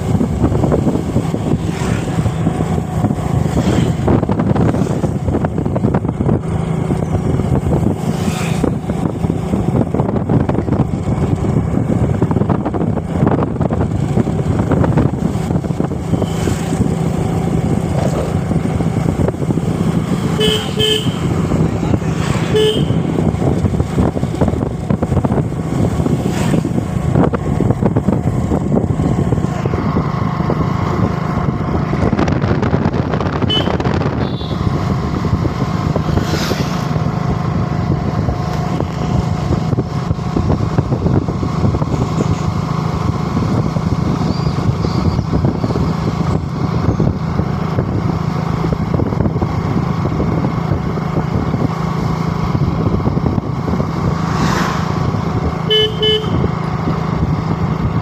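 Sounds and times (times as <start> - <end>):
motorcycle engine hum: 0.0 - 58.0
rushing noise: 53.2 - 55.7.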